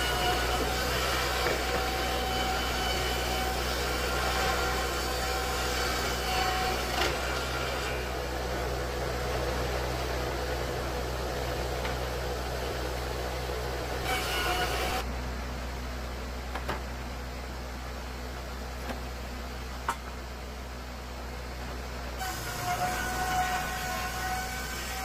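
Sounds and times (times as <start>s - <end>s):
saws cutting a board: 0.0s - 8.4s, 14.0s - 15.0s, 22.2s - 25.0s
motor hum: 0.0s - 25.0s.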